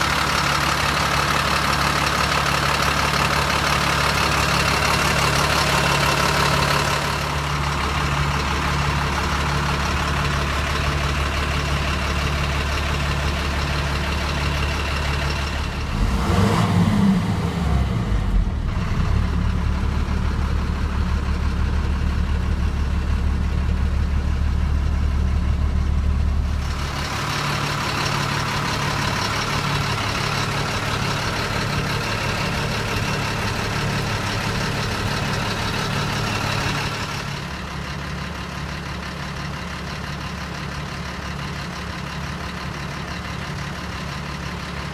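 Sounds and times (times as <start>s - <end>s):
heavy truck engine idling: 0.0s - 44.9s
deep low hum: 14.2s - 30.3s.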